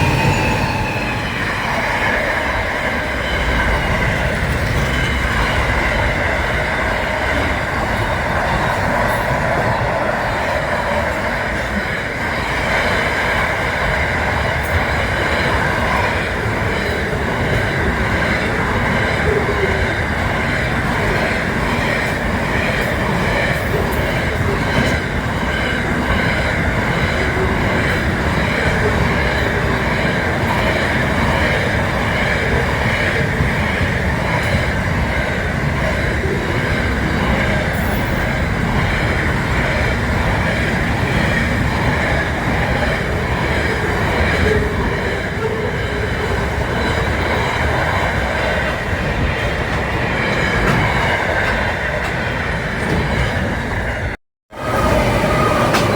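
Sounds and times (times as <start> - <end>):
high-pitched wheel squeal: 0.0 - 5.2
train rumbling on rails: 0.0 - 55.9.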